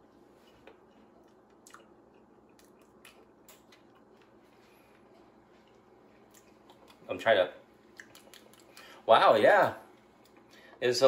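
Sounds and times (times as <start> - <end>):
faint chewing: 0.4 - 7.1, 7.8 - 9.0
soft mouth clicks: 7.9 - 8.9.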